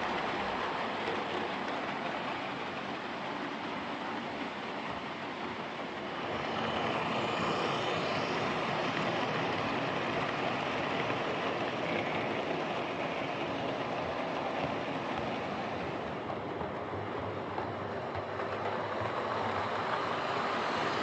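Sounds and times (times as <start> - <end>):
model train motor whirring: 6.2 - 13.5.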